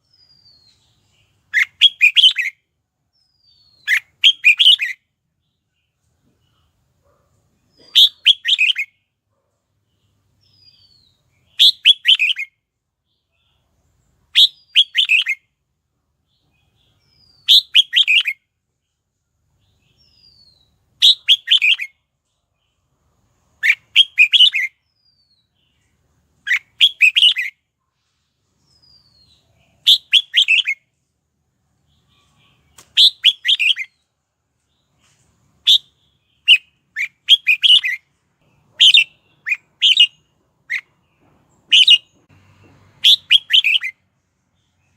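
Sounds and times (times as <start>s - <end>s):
bird whistled song: 0.0s - 5.1s, 7.7s - 9.0s, 10.4s - 12.6s, 14.3s - 15.5s, 16.3s - 18.4s, 19.6s - 22.0s, 23.6s - 27.6s, 28.6s - 30.8s, 31.9s - 34.0s, 35.6s - 38.1s, 38.8s - 41.0s, 41.6s - 42.2s, 43.0s - 44.0s.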